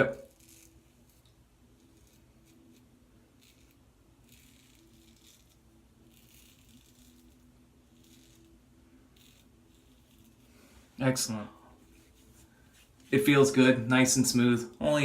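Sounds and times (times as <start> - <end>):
razor scraping stubble: 0.1 - 10.6.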